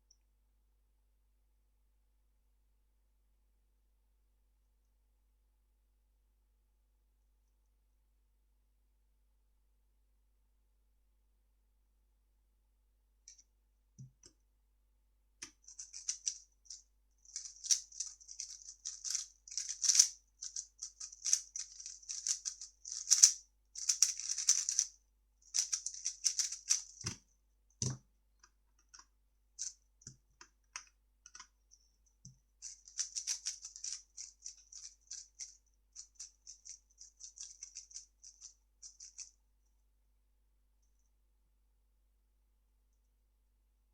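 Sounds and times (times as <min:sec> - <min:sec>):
puzzle cube clicking and rattling: 0:15.5 - 0:27.2, 0:32.6 - 0:39.3.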